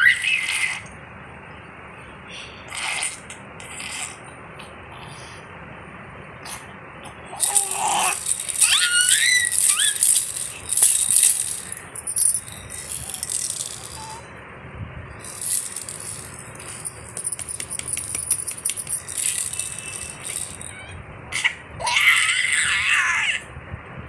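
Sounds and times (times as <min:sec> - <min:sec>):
rattling: 0:07.4 - 0:14.2, 0:15.2 - 0:20.8.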